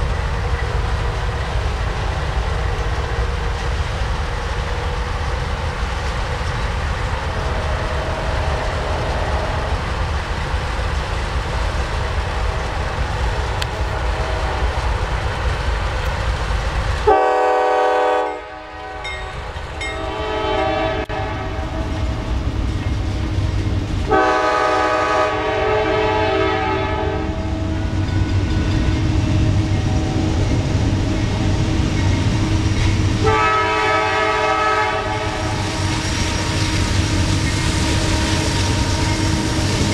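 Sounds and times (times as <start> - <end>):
train rumbling past: 0.0 - 39.9
locomotive air horn blasts: 13.8 - 14.8, 17.1 - 19.2, 20.0 - 22.0, 24.1 - 27.5, 33.2 - 35.7.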